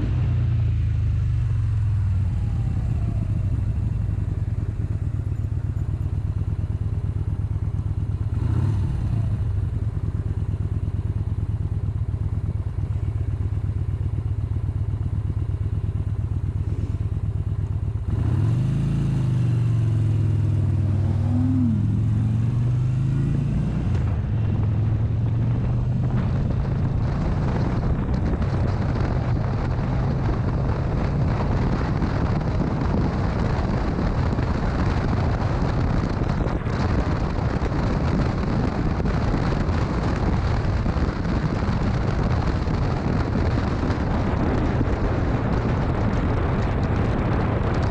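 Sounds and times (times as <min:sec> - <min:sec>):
motorcycle engine running: 0:00.0 - 0:47.9
wind rushing noise: 0:18.1 - 0:47.9.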